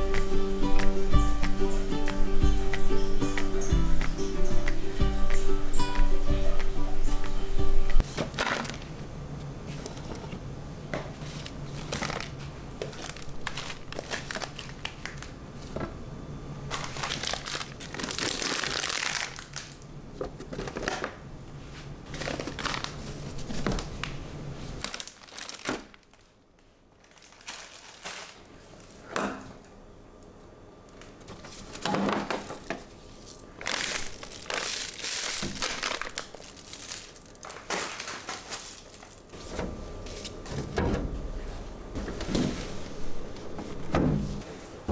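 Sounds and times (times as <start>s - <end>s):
packaging crinkling: 11.2s - 15.8s, 16.7s - 19.8s, 22.1s - 24.2s, 24.8s - 29.0s, 33.2s - 39.4s.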